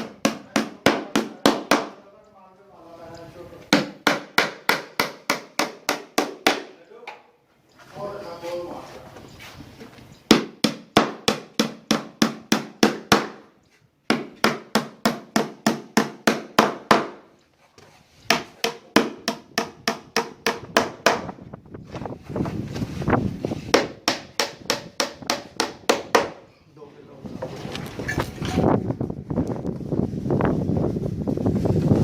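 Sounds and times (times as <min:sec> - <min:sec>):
hammer striking wood: 0:00.0 - 0:02.0, 0:03.7 - 0:06.7, 0:10.3 - 0:13.5, 0:14.1 - 0:17.3, 0:18.3 - 0:21.3, 0:23.7 - 0:26.4.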